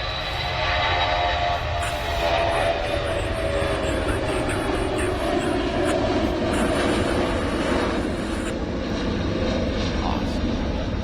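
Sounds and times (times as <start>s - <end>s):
distant jet engines rumbling: 0.0s - 11.0s.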